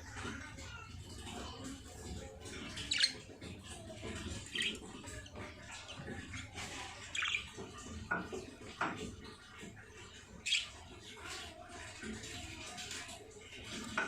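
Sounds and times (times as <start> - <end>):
baby birds cheeping: 1.1 - 8.0, 10.1 - 11.4.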